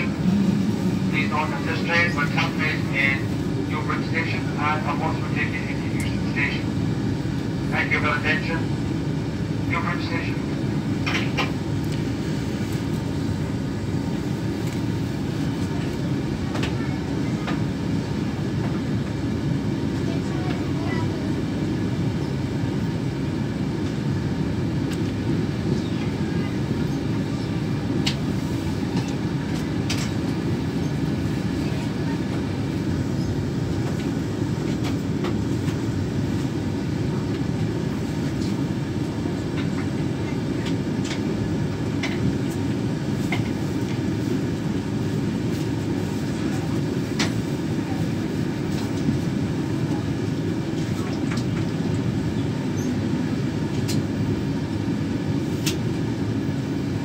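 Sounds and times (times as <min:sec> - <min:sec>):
wheels rumbling on track: 0:00.0 - 0:03.7.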